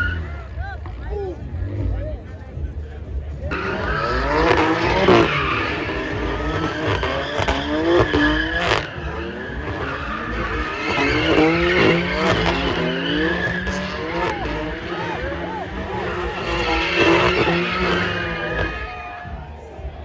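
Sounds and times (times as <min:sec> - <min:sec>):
car engine revving: 0:00.0 - 0:20.0
tyres squealing: 0:03.5 - 0:19.2.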